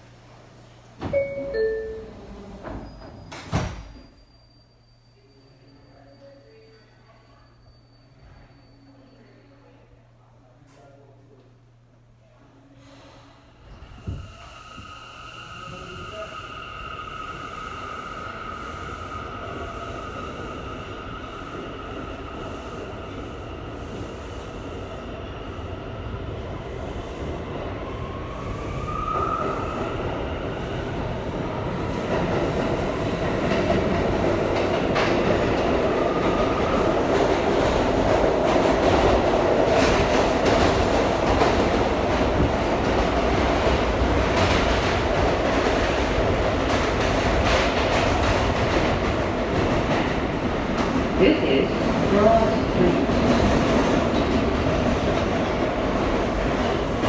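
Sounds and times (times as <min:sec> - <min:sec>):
subway motor whine: 0:00.0 - 0:10.5.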